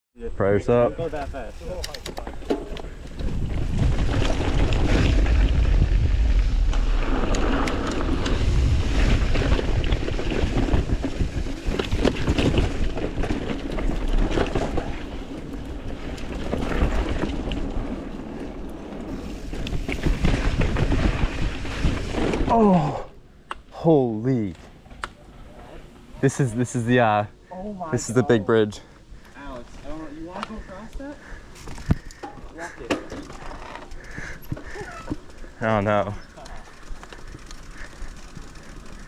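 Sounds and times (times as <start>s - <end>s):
wind buffeting microphone: 1.0s - 22.5s
bike rattling and knocking: 1.2s - 22.6s, 29.9s - 39.0s
rushing rumble: 2.6s - 23.2s.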